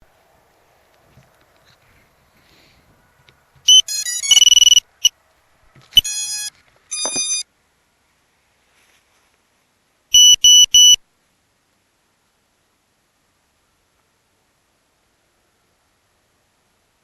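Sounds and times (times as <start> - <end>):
electronic beeps: 3.7 - 5.1, 6.0 - 7.4, 10.2 - 11.0.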